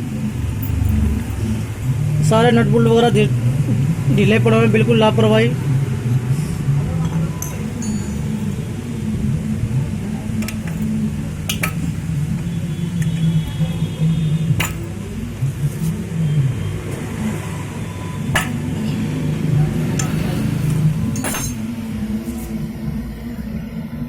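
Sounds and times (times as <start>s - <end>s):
metal parts clinking: 0.5s - 1.4s, 7.0s - 8.7s, 10.2s - 13.4s, 14.5s - 15.1s, 17.3s - 19.0s, 20.0s - 21.7s.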